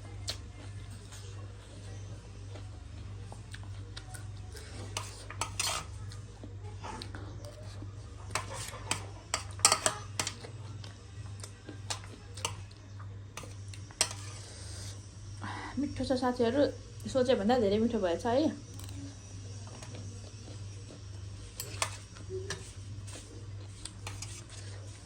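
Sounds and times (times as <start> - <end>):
cutlery clinking against a dish: 4.9 - 6.0, 8.2 - 10.6, 11.9 - 12.8, 13.4 - 14.5, 21.5 - 23.2, 23.9 - 24.8.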